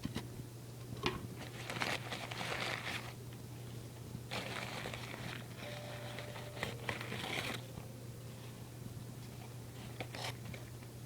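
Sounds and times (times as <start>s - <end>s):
packing material crinkling: 1.4s - 3.2s, 4.3s - 7.6s.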